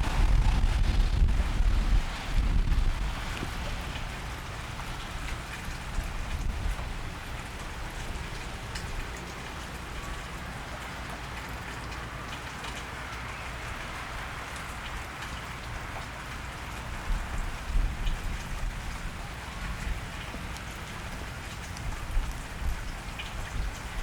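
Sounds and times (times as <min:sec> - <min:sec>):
low rumble: 0:00.0 - 0:03.6
rain on a wet street: 0:00.0 - 0:24.0.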